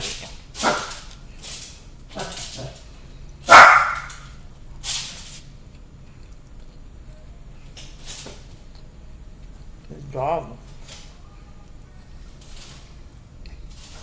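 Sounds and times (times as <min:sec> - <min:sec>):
dog barking: 0:00.6 - 0:01.0, 0:03.5 - 0:04.2.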